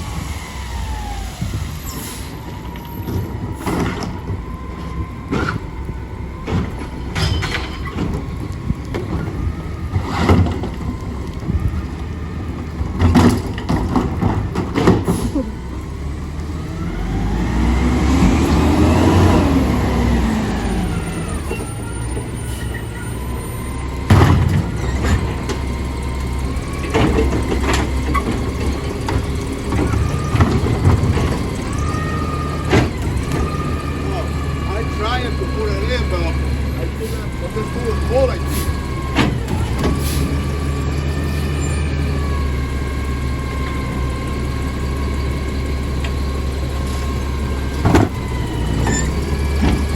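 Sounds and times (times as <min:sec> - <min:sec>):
garbage truck diesel engine: 0:00.0 - 0:49.9
bangs and clanks: 0:06.4 - 0:10.9, 0:24.0 - 0:25.6.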